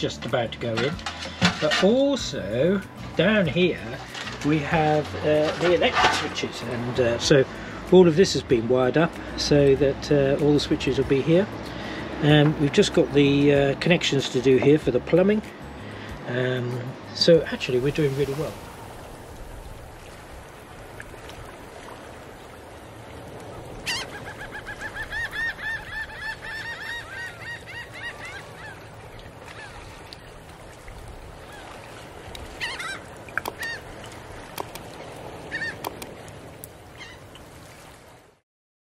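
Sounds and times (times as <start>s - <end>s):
birds calling: 22.7s - 30.5s, 31.4s - 36.3s, 36.9s - 37.4s.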